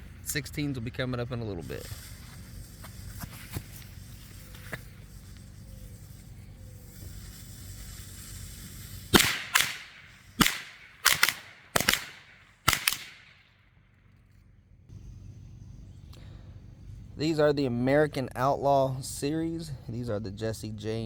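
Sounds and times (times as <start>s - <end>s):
firecrackers banging: 6.8s - 13.4s.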